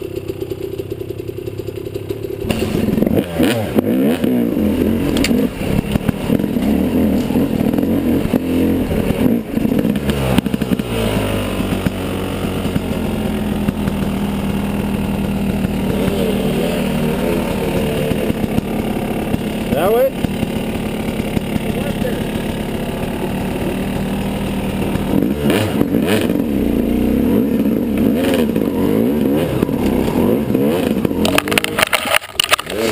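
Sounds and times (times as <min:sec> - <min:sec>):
dirt bike engine revving: 0:02.2 - 0:32.9
clattering: 0:31.2 - 0:32.9.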